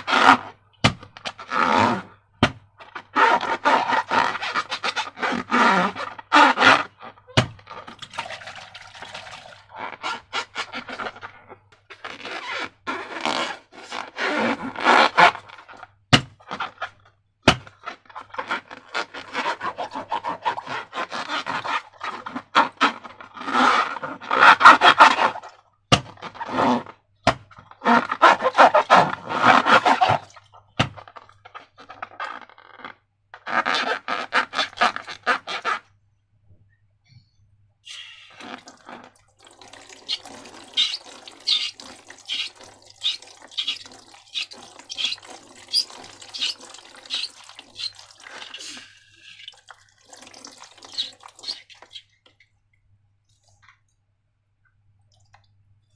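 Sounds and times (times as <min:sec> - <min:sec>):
slime squelching and crackling: 0:38.3 - 0:52.2.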